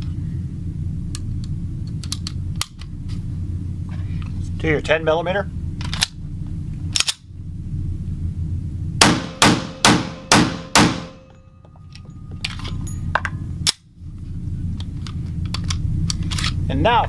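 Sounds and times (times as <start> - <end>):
gun handling clicks: 5.8 - 6.2, 6.9 - 7.2, 15.0 - 16.6
pistol shots ringing: 9.0 - 11.4.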